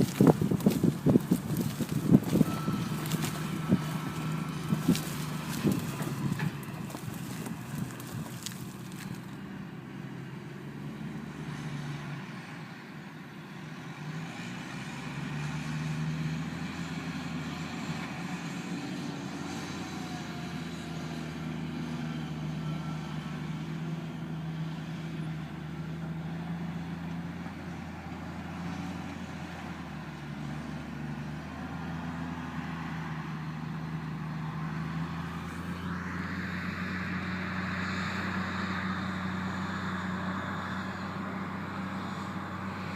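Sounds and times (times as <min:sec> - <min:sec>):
heavy machine engine running: 0:00.0 - 0:12.4.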